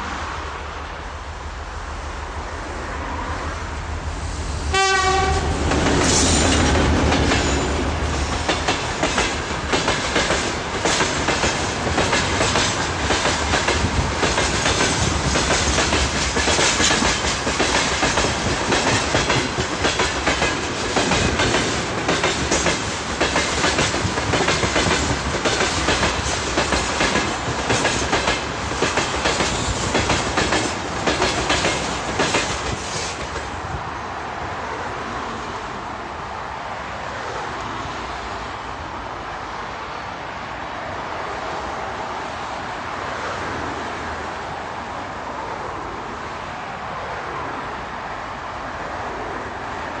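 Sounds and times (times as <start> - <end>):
train wheels clacking over rail joints: 5.0 - 33.6.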